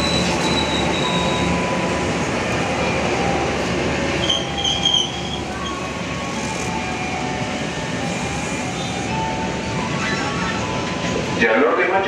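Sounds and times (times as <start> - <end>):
train wheels rumbling on rails: 0.0 - 11.7.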